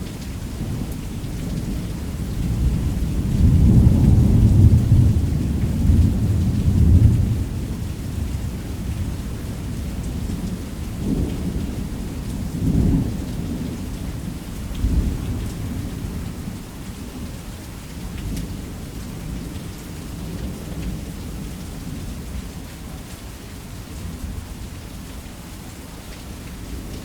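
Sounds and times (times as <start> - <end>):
heavy rain: 0.0 - 27.0
thunder rumbling: 2.5 - 8.8.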